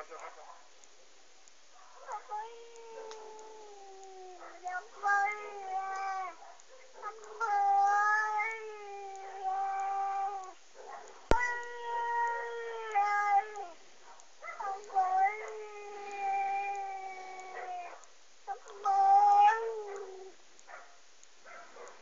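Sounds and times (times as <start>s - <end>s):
angry cat yowling: 2.0s - 6.4s, 7.0s - 10.6s, 11.3s - 13.8s, 14.5s - 20.4s.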